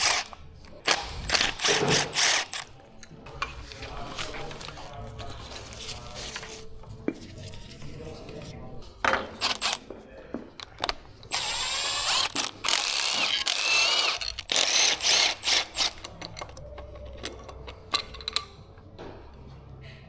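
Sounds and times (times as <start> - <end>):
ratchet clicks: 0.0 - 2.7, 9.4 - 9.8, 10.6 - 18.6
power tool whirring: 0.0 - 2.8, 9.4 - 9.8, 10.6 - 16.6.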